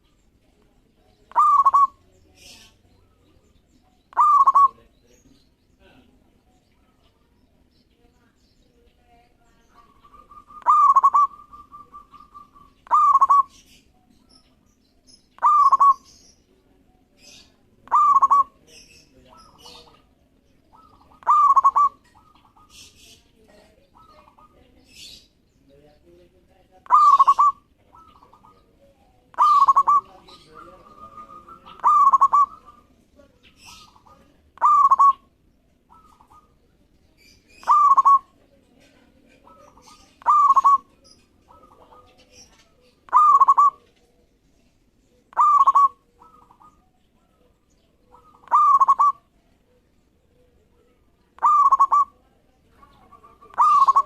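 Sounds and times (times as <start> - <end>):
dove cooing: 1.2 - 3.5, 4.1 - 4.9, 9.6 - 13.8, 15.4 - 16.2, 17.1 - 25.2, 26.8 - 36.6, 37.5 - 44.2, 45.2 - 54.0.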